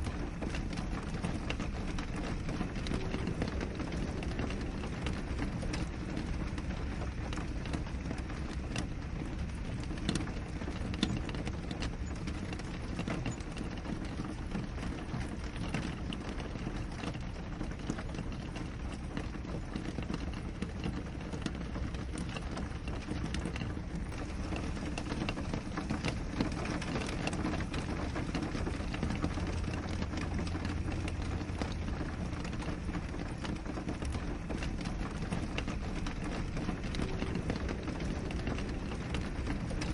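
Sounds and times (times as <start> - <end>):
deep steady rumble: 0.0 - 39.9
rain pattering on window: 0.0 - 39.9.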